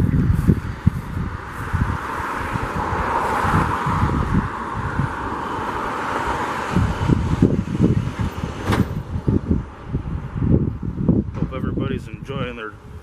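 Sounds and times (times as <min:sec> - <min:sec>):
passing vehicle hiss: 0:00.0 - 0:11.1
wind buffeting microphone: 0:00.0 - 0:13.0.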